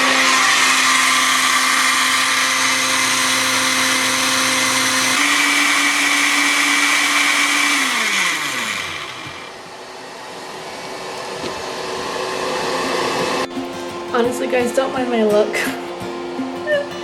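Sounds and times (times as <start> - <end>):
electric motor whining: 0.0 - 13.5.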